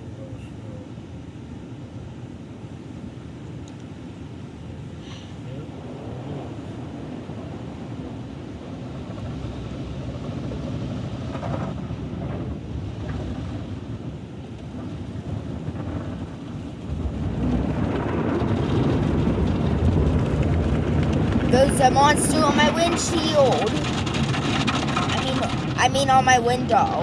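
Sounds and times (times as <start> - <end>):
car wash machinery rushing: 16.4 - 27.0.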